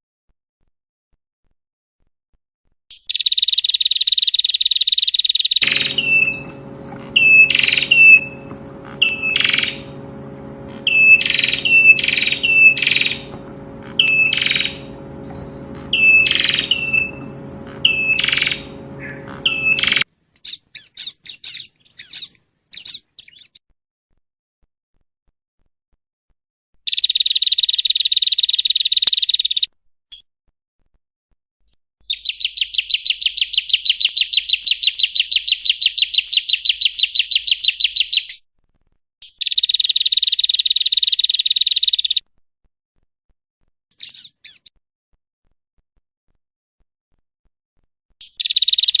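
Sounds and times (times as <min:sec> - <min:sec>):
bird buzzy trill: 0:05.6 - 0:20.0
bird high falling notes: 0:05.6 - 0:20.0
steady low hum: 0:05.6 - 0:20.0.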